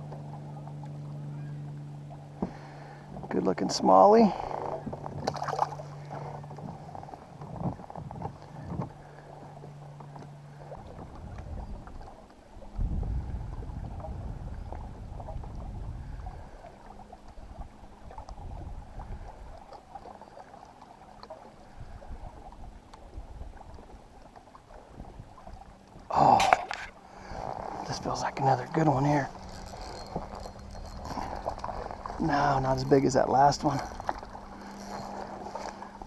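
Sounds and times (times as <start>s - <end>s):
water lapping against hull: 0.0s - 36.0s
low rumble: 10.8s - 19.6s.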